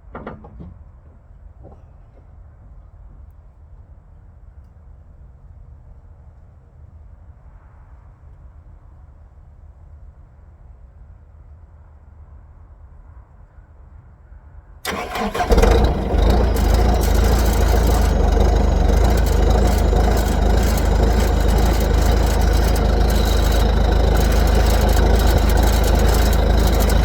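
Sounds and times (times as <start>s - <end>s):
engine cranking and running: 14.8s - 27.0s.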